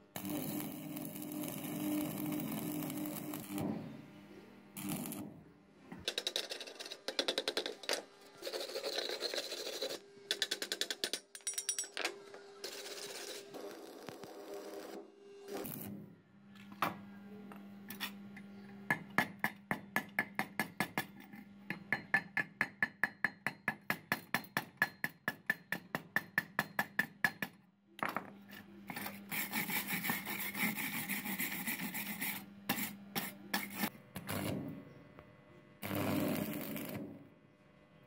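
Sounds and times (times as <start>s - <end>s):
welding arc hissing: 0.2s - 3.6s, 4.8s - 5.2s, 35.8s - 37.2s
wire brush scrubbing metal: 8.4s - 10.0s, 28.9s - 33.9s.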